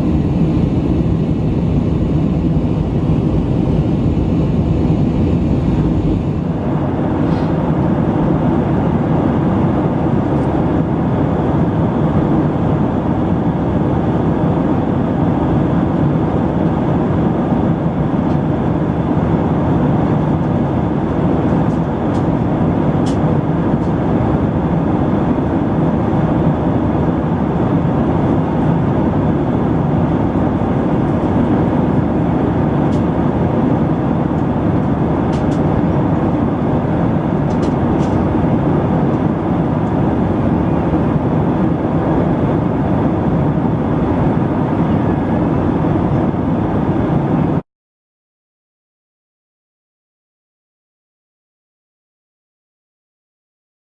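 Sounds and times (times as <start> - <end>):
airplane engines rumbling: 0.0 - 47.6
rushing air: 0.0 - 47.6.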